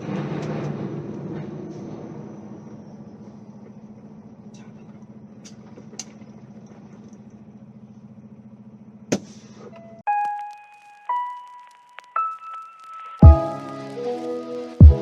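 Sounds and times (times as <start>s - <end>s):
vehicle engine humming: 0.0s - 9.8s.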